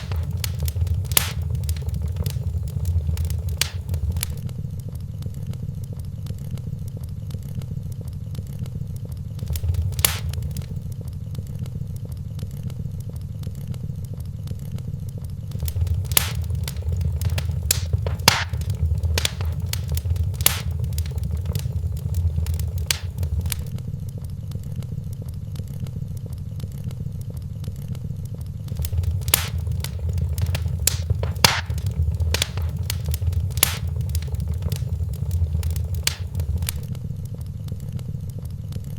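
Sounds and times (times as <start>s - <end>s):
loud fire pops: 0.0s - 4.4s, 9.4s - 10.8s, 15.5s - 23.7s, 28.7s - 36.9s
wood fire crackling: 0.0s - 4.4s, 9.4s - 10.9s, 15.5s - 23.7s, 28.7s - 36.9s.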